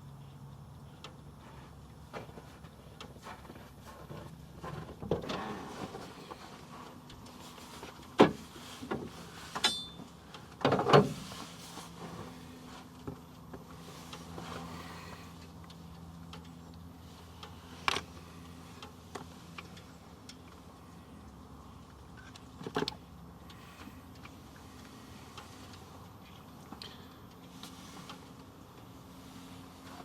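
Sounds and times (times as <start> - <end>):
low steady hum: 0.0 - 30.0
short metallic ring: 9.6 - 10.0.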